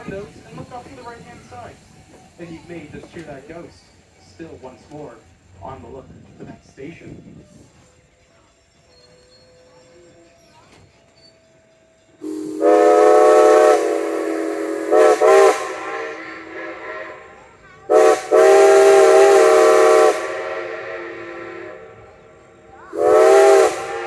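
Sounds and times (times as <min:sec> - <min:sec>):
steam hissing: 0:00.0 - 0:24.0
steam locomotive whistle: 0:12.2 - 0:24.0.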